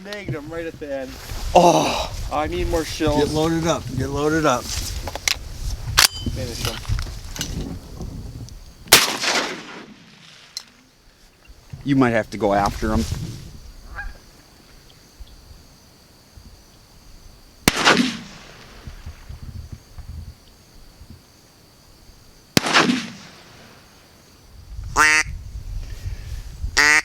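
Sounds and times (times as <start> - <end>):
shotgun blasts echoing: 8.9 - 10.5, 17.7 - 18.9, 22.6 - 23.8
goose honk: 25.0 - 25.3, 26.8 - 27.0.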